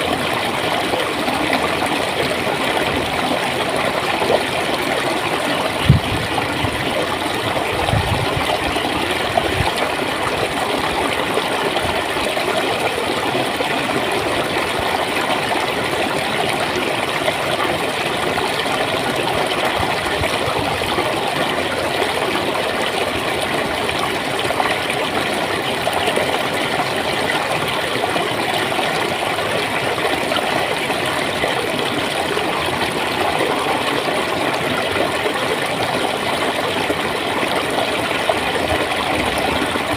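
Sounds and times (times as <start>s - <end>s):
running water gurgling: 0.0s - 39.9s
brief low thumps: 5.9s - 6.3s.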